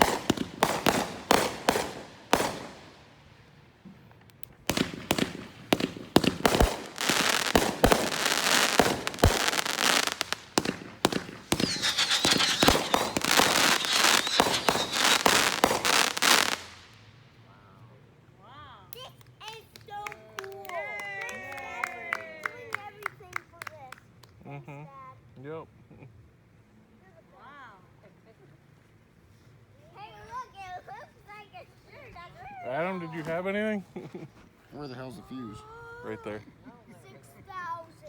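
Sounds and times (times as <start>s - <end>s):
fireworks banging and crackling: 0.0s - 17.0s
thin high firework whistle: 11.4s - 16.7s.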